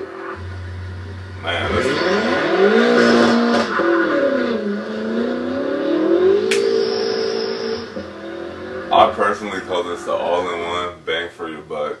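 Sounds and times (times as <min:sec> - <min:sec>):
car engine accelerating hard: 0:00.2 - 0:10.9.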